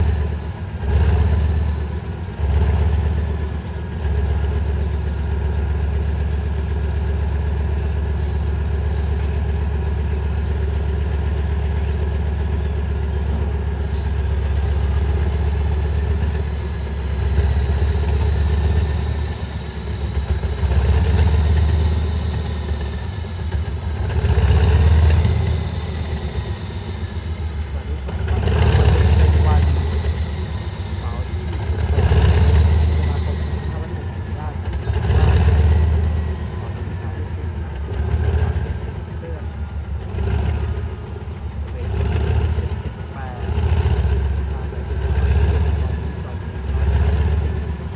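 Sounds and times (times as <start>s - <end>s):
diesel locomotive engine rumbling: 0.0s - 47.9s.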